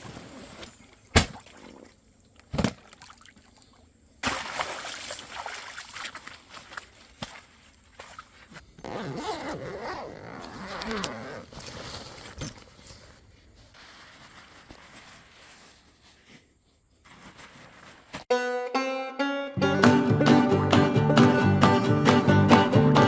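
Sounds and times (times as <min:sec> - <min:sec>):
zipper being pulled: 0:08.8 - 0:12.6
plucked-string music: 0:18.3 - 0:23.0.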